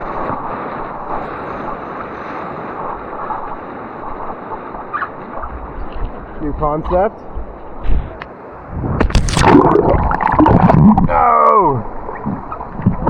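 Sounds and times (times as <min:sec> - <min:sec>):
wind buffeting microphone: 0:00.0 - 0:13.0
whitewater rushing: 0:08.4 - 0:13.0.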